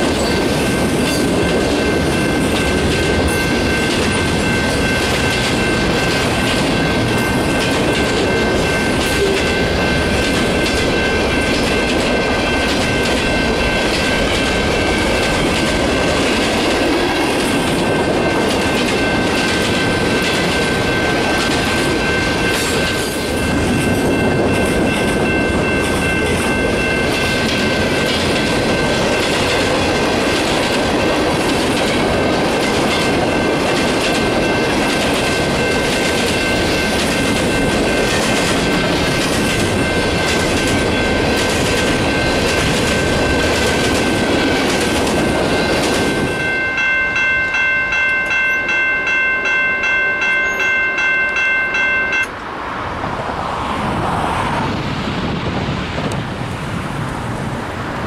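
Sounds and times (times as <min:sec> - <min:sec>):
rhythmic clicks over rail joints: 0:00.0 - 0:52.6
train wheels rumbling on rails: 0:00.0 - 0:58.0
high-pitched ringing: 0:45.2 - 0:52.4.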